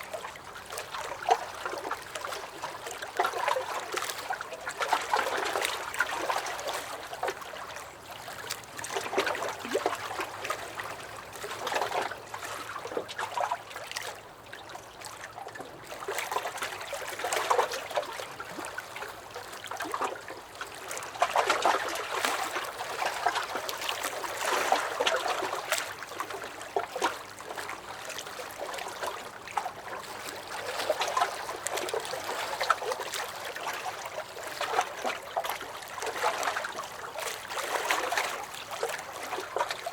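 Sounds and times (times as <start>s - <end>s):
lake waves lapping against a dock: 0.0s - 39.9s.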